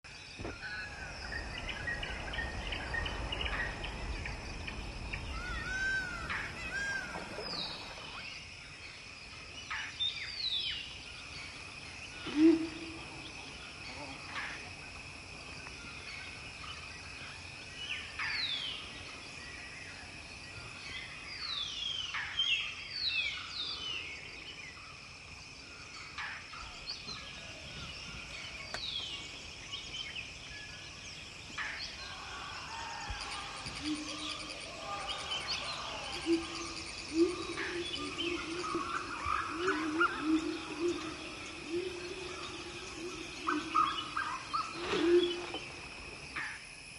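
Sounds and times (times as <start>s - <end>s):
noisy rumbling: 0.4s - 8.2s
birds whistling: 0.4s - 8.3s, 33.0s - 45.8s.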